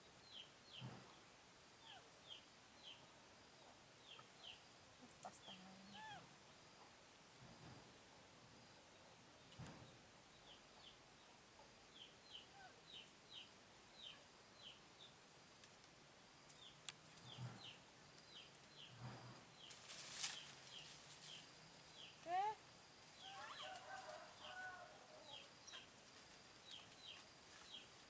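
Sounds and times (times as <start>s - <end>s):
small bird chirping: 1.8s - 6.3s, 9.0s - 15.2s, 16.5s - 24.6s, 25.2s - 25.9s, 26.6s - 27.9s
brief hiss-like rustle: 19.7s - 21.4s.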